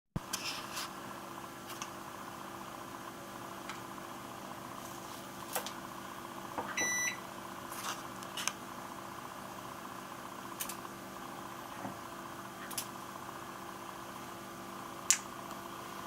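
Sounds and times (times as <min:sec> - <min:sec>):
washing machine humming: 0:00.2 - 0:16.0
short electronic beep: 0:06.7 - 0:07.2.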